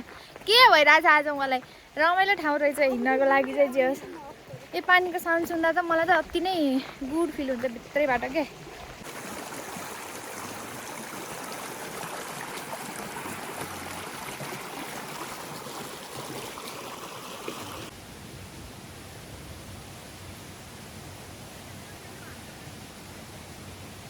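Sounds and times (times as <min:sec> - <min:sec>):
mountain stream rushing: 0:00.0 - 0:18.4.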